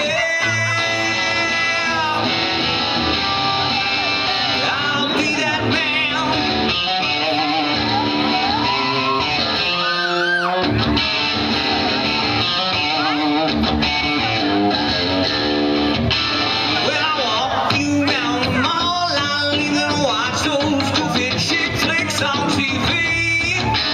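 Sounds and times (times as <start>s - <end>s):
person singing: 0.0s - 15.1s, 16.4s - 23.9s
live band guitars: 0.0s - 23.9s.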